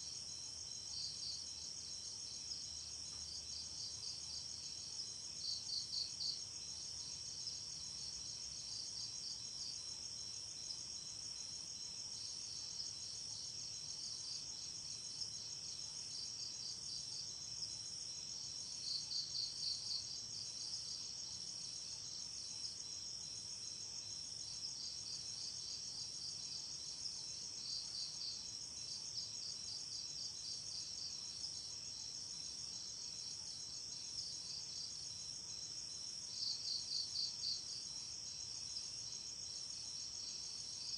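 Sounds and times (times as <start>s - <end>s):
crickets chirring: 0.1s - 40.9s.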